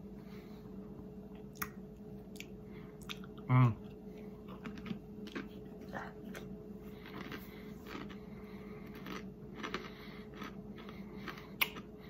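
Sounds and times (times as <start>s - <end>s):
person chewing crisps: 1.5s - 12.0s
person humming: 3.5s - 3.8s.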